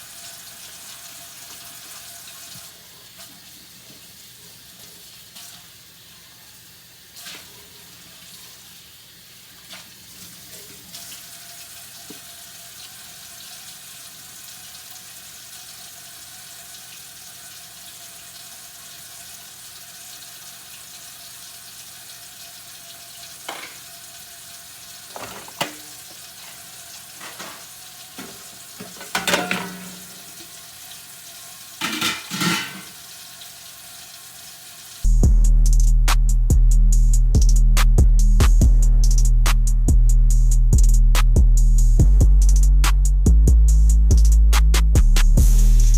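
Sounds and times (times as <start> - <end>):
tap running into sink: 23.4 - 23.8, 25.1 - 26.6, 27.2 - 30.6
dishes clinking: 23.5 - 23.8, 25.1 - 26.6, 27.2 - 30.4, 31.8 - 33.0.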